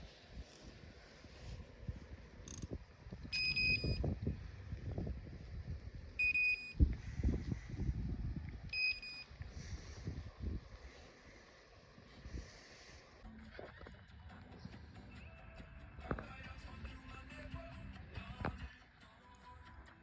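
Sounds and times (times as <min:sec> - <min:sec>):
electronic bite alarm beeping: 0:03.3 - 0:04.0, 0:06.2 - 0:06.8, 0:08.7 - 0:09.3.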